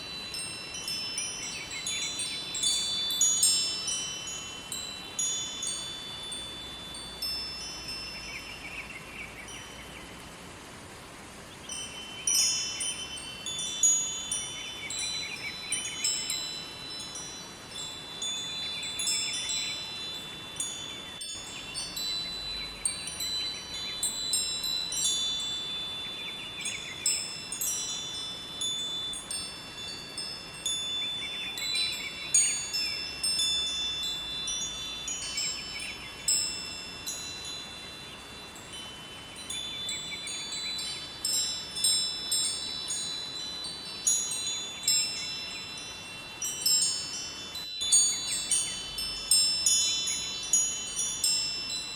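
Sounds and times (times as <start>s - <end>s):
wind chimes ringing: 0.0s - 10.5s, 11.6s - 51.9s
river water flowing: 0.0s - 51.9s.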